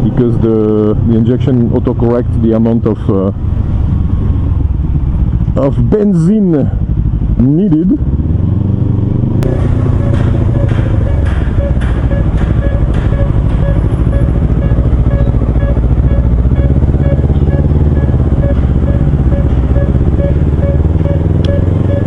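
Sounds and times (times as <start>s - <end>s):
motorcycle engine running: 0.0s - 22.0s
road and wind noise: 0.0s - 22.0s
faint short repeating tone: 9.5s - 22.0s.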